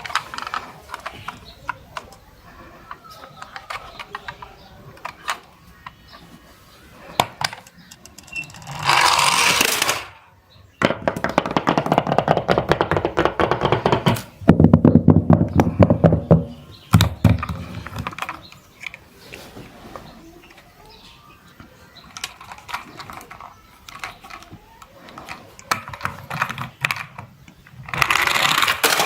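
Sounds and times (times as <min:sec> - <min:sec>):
fast clicking and rattling: 0:07.1 - 0:10.1, 0:10.8 - 0:19.0, 0:22.0 - 0:29.0.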